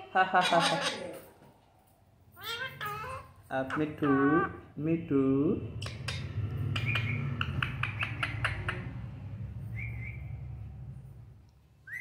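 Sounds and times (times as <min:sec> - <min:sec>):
parrot high chirp: 0:02.4 - 0:03.4
parrot clicking: 0:05.8 - 0:09.1.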